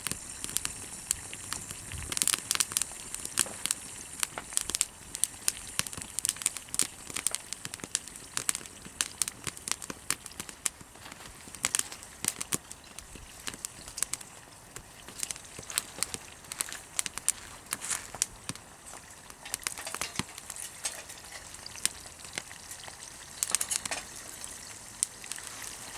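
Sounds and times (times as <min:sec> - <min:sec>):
campfire crackling: 0:00.0 - 0:25.9.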